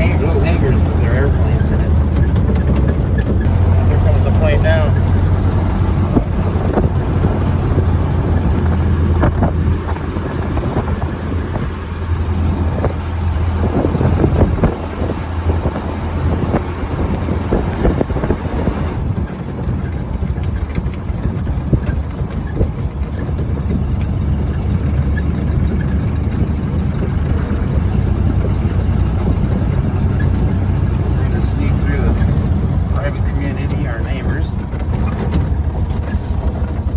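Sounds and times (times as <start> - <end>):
rattles: 0.0 - 36.9
road noise: 0.0 - 36.9
truck engine low drone: 0.0 - 36.9.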